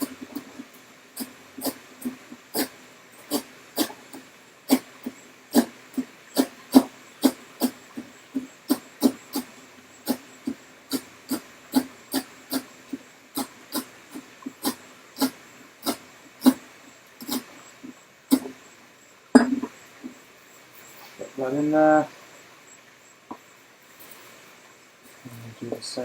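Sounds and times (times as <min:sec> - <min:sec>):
knife chopping on cutting board: 0:01.2 - 0:02.7, 0:06.4 - 0:07.8, 0:10.9 - 0:12.7.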